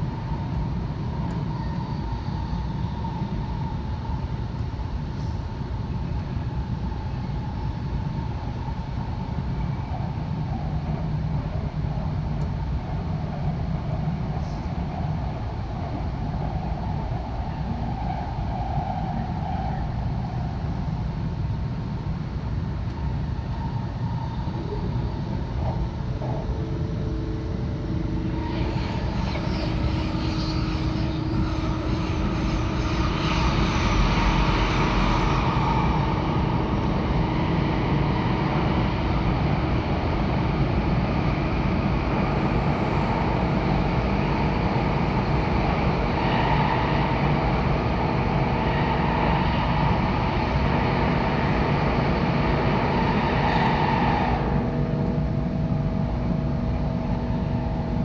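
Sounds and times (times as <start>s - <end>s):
steady humming tones: 0.0s - 58.0s
train interior rumble with hiss: 0.0s - 58.0s.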